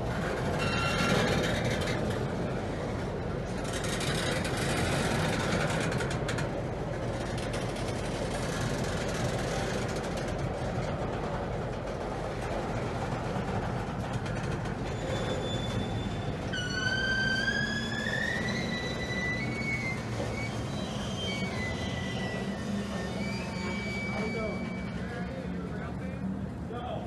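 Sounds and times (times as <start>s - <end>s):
rail cars clicking and rattling: 0.0s - 26.0s
freight train wheels rumbling: 0.0s - 27.0s
faint high squeal: 0.6s - 1.6s, 14.8s - 25.4s.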